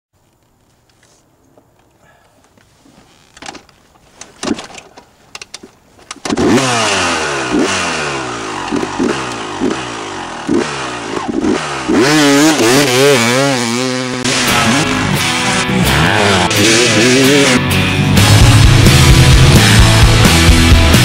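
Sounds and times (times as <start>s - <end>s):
dirt bike engine revving: 6.2s - 21.0s.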